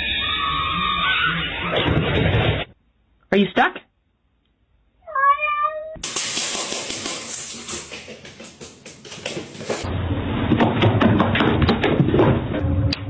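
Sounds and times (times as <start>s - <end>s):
cat meowing: 5.0s - 6.0s.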